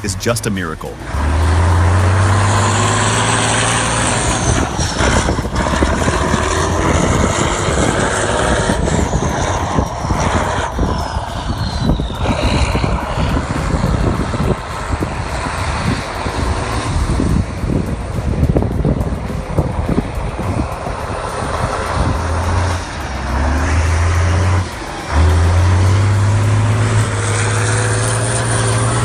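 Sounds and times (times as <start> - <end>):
heavy truck engine rumble: 0.0 - 29.0
faint high whistles gliding down: 1.4 - 17.3.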